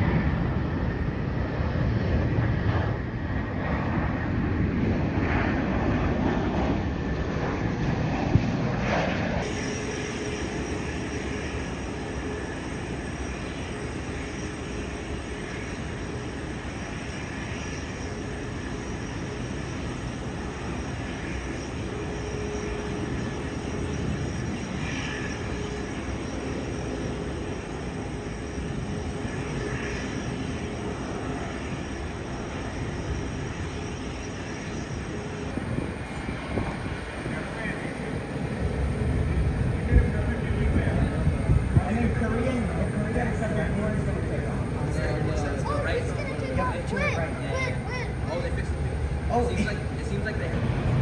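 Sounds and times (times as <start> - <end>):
jet engines rumbling: 0.0 - 51.0
wind on microphone: 35.0 - 47.0.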